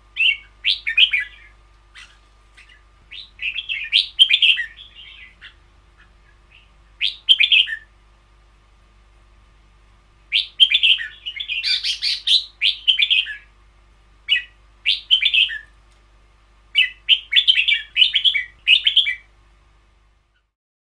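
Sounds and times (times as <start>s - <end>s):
bulbul singing whistled phrases: 0.1s - 7.9s, 10.3s - 13.5s, 14.3s - 15.7s, 16.7s - 19.3s.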